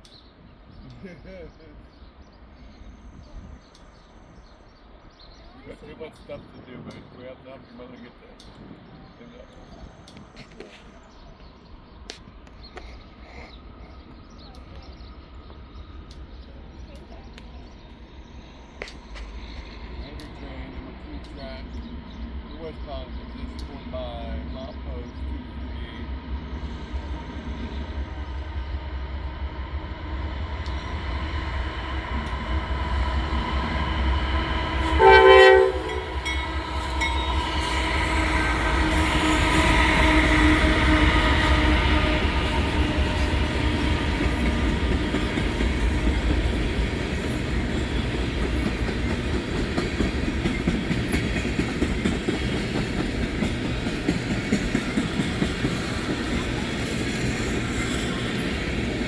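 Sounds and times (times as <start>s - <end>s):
diesel locomotive engines: 0.0s - 59.0s
freight train rumbling past: 0.3s - 59.0s
train horn blast: 34.6s - 46.3s
wheels clacking on rail joints: 34.9s - 59.0s.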